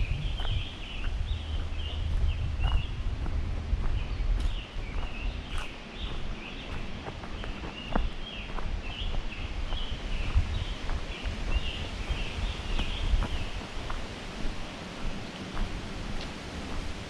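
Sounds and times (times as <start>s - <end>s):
low rumble: 0.0s - 5.6s
footsteps on leafy trail: 0.0s - 17.0s.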